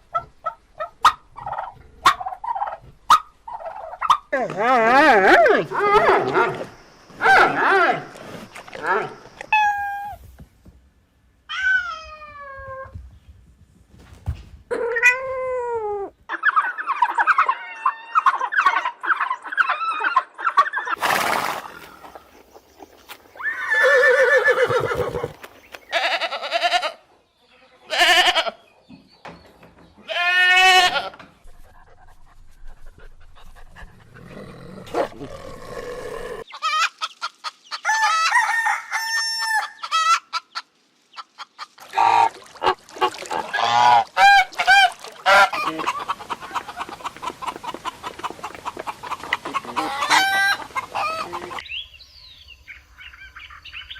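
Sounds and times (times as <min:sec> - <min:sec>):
farm animals calling: 0:00.0 - 0:10.2, 0:14.7 - 0:28.7, 0:34.2 - 0:38.4, 0:39.4 - 0:51.9
fowl calling: 0:36.5 - 0:51.7.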